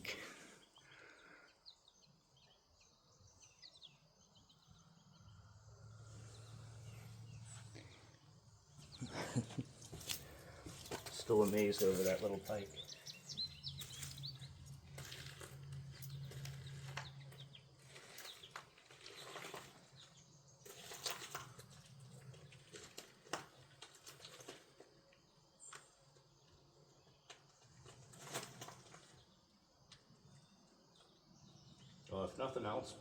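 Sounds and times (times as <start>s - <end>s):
faint bird chirps: 0.0s - 10.6s, 11.3s - 14.8s.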